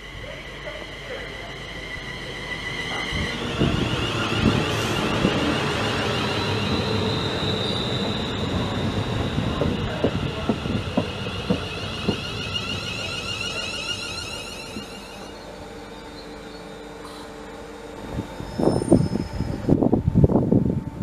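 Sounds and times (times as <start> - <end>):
high whining tones: 0.0 - 21.0
train rumbling on track: 0.0 - 21.0
wheels clanking: 0.6 - 17.2.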